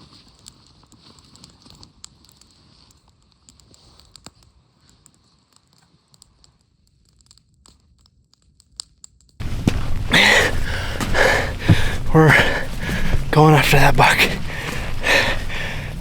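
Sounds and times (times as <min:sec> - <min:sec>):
faint rustling: 0:09.4 - 0:16.0.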